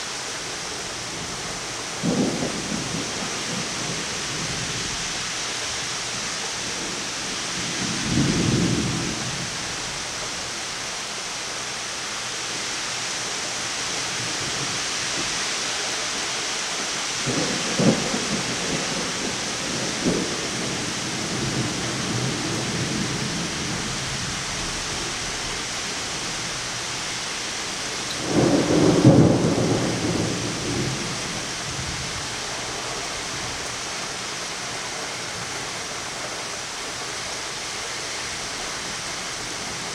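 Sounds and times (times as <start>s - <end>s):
steady rain: 0.0s - 39.9s
thunder rumbling and cracking: 2.0s - 5.1s, 7.6s - 9.6s, 17.2s - 25.7s, 28.0s - 32.4s.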